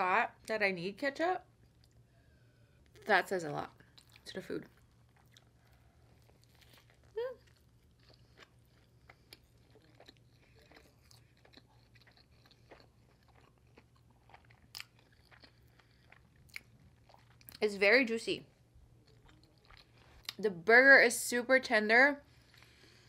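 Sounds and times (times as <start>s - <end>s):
chewing with wet mouth sounds: 2.8s - 17.6s, 18.8s - 20.4s.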